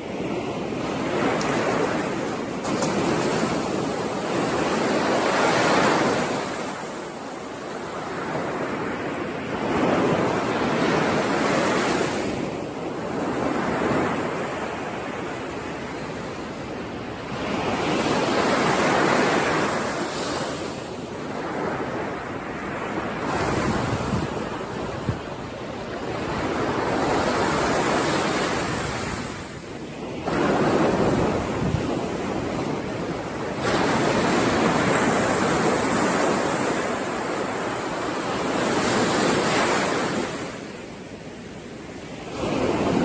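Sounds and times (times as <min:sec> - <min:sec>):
ocean waves breaking: 0:00.0 - 0:43.0.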